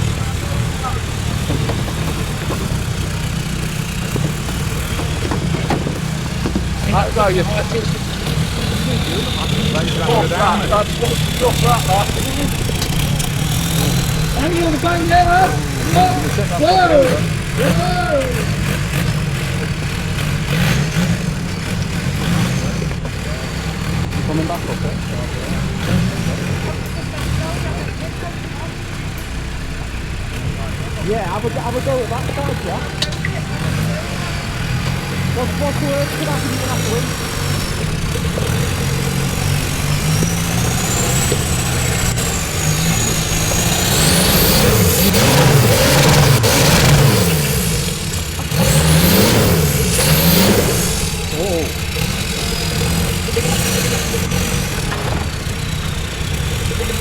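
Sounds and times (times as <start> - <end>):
engine running at low revs: 0.0 - 57.0
person calling out: 16.9 - 18.4.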